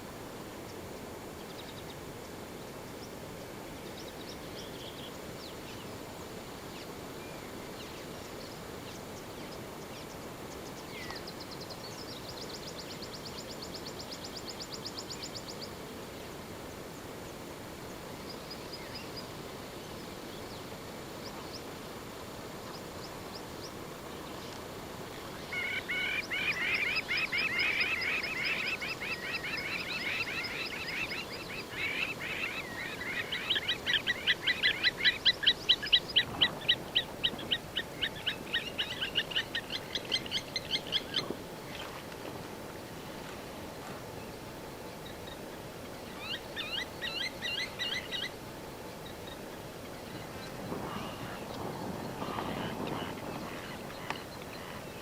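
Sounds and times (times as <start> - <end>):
wild birds calling: 25.2 - 55.0.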